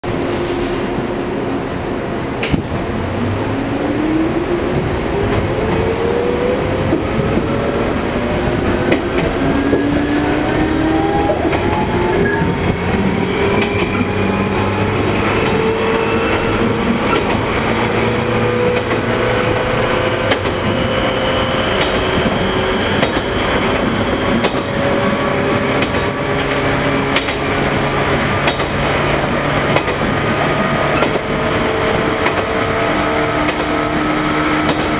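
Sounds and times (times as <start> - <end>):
train running rumble: 0.0 - 34.9
sharp clicks from rails: 2.4 - 3.0, 6.8 - 21.0, 21.7 - 34.9.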